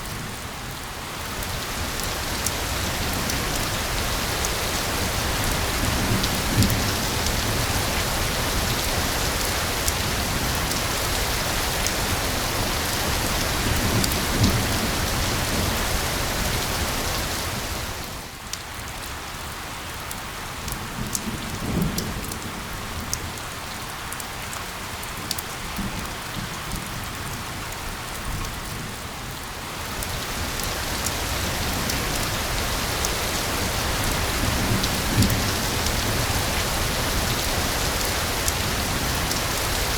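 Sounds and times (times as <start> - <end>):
heavy rain hissing: 0.9 - 18.4, 29.5 - 39.9.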